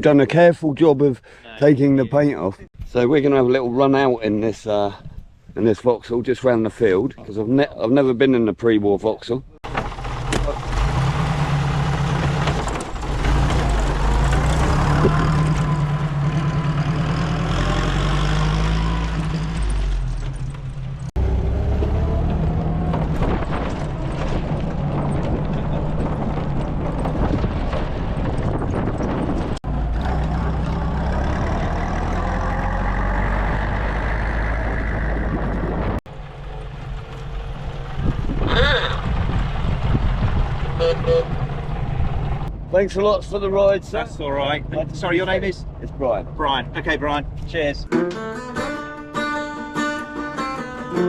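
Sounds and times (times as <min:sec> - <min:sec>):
car engine revving: 0:09.7 - 0:42.5.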